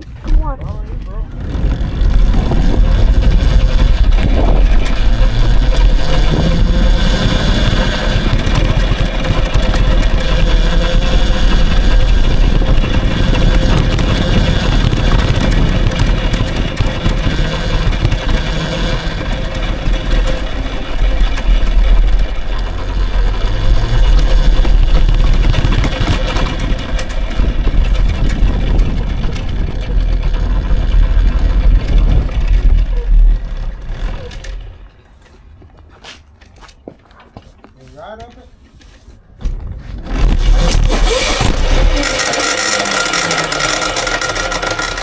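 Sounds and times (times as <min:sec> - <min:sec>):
electric dirt bike rumbling: 0:00.0 - 0:37.3, 0:39.3 - 0:45.0.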